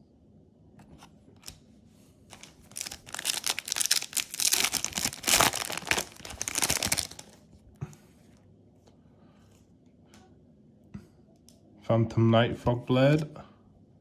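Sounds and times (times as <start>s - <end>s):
foil wrapper crinkling and tearing: 2.3s - 7.5s.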